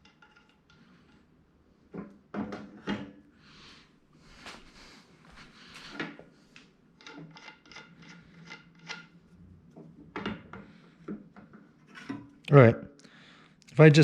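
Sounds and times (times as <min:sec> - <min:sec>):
metal parts scraping: 0:07.0 - 0:09.1.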